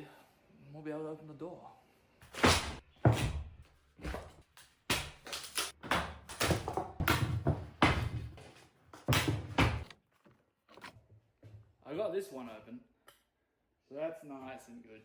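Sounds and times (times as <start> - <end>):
wood knocking and scraping: 2.2 - 11.6.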